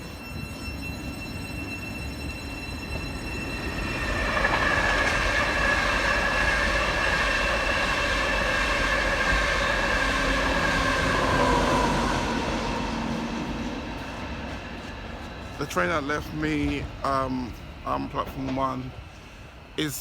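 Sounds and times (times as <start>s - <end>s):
electric train whine: 0.0s - 20.0s
wheels rumbling on rails: 0.0s - 20.0s.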